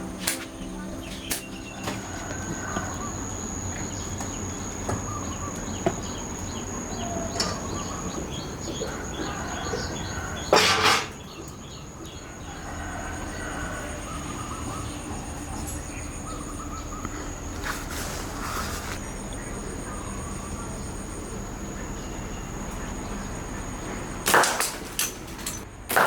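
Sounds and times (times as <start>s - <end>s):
high insect-like drone: 0.0s - 10.4s
birds chirping: 0.0s - 25.7s.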